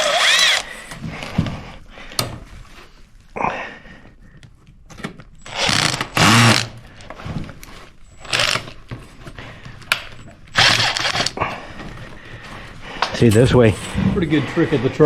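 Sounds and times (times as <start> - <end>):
cordless drill driving screws: 0.0 - 0.8, 5.4 - 6.8, 8.2 - 8.8, 10.6 - 11.4.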